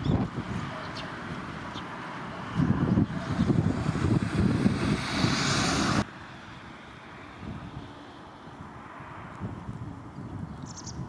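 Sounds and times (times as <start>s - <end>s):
wind buffeting microphone: 0.0s - 6.1s, 8.6s - 11.0s.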